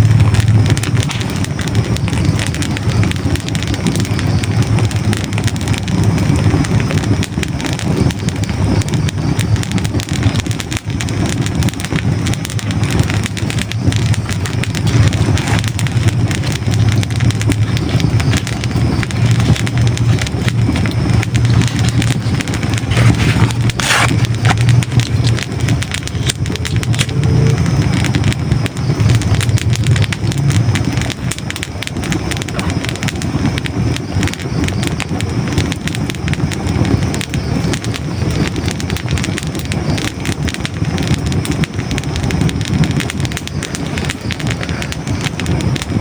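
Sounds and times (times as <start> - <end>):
fire crackling and popping: 0.0 - 46.0.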